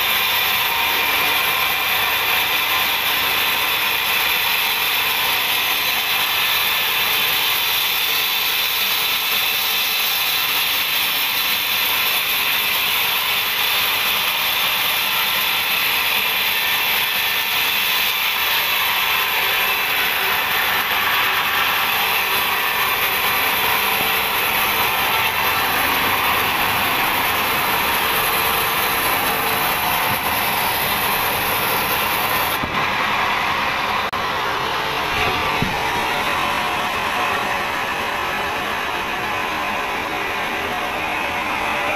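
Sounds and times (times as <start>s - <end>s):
band saw cutting a log: 0.0s - 41.9s.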